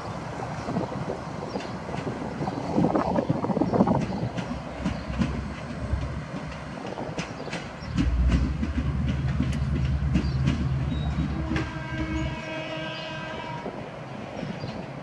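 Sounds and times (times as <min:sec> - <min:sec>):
train wheels clicking over rail joints: 0:00.8 - 0:12.5
deep engine drone: 0:07.9 - 0:12.3.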